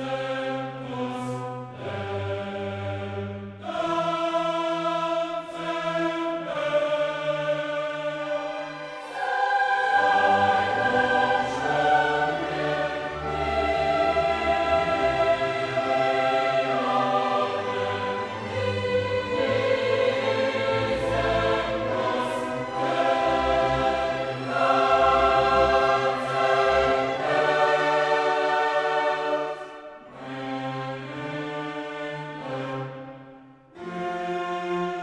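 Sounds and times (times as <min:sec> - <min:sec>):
choir singing sustained notes: 0:00.0 - 0:35.0
orchestra playing: 0:08.4 - 0:33.1.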